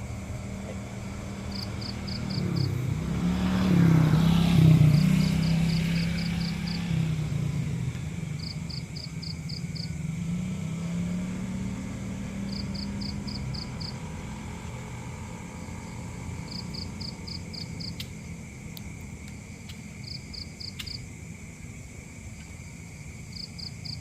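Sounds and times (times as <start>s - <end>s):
insect chirping: 0.0s - 24.0s
low vehicle engine rumble: 0.0s - 24.0s
faint clicks: 17.9s - 19.9s.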